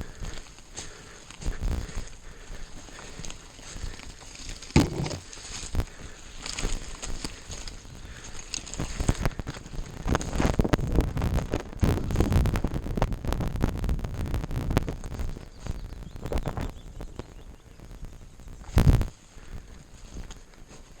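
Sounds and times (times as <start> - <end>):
bike rattling over rough trail: 0.0 - 13.6.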